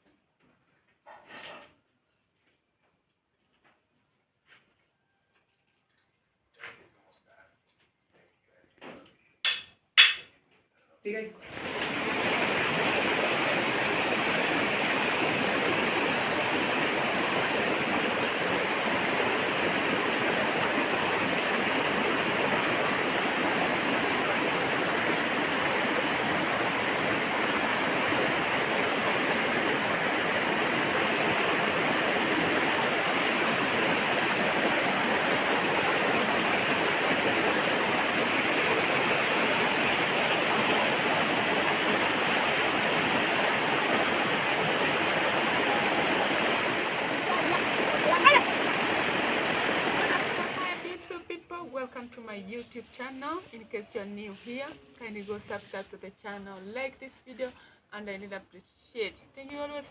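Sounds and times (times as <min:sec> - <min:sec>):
steady rushing noise: 0:11.5 - 0:50.9.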